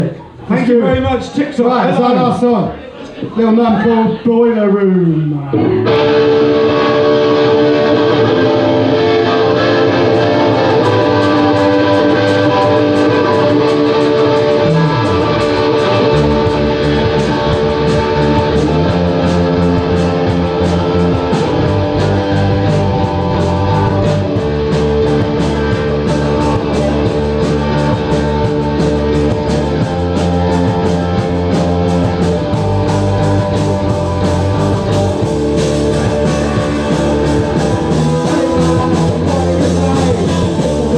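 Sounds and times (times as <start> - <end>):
bass and drums: 0.0 - 3.4, 5.6 - 40.9
electric guitar: 5.4 - 40.9.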